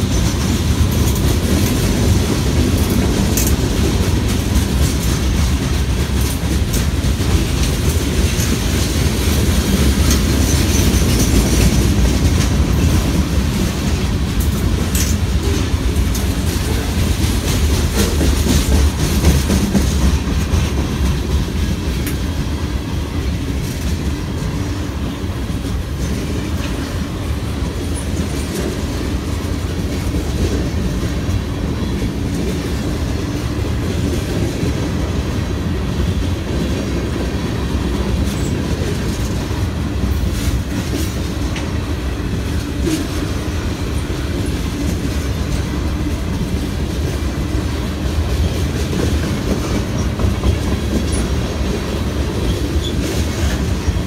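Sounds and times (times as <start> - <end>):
clicking over rail joints: 0.0 - 22.5
train wheels rumbling on rail: 0.0 - 54.0.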